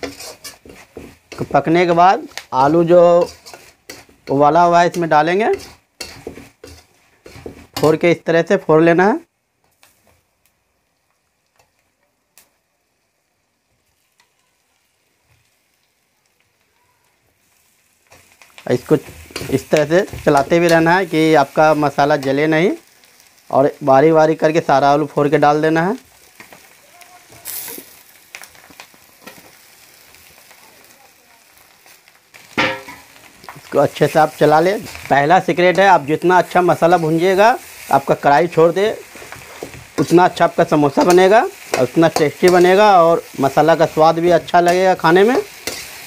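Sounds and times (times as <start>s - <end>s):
steel spatula scraping a pan: 0.0s - 8.0s, 18.1s - 22.2s, 38.6s - 46.0s
masala sizzling: 0.0s - 46.0s
man talking: 1.4s - 3.4s, 4.3s - 5.6s, 7.8s - 9.2s, 18.6s - 22.8s, 33.6s - 39.1s, 40.0s - 45.5s.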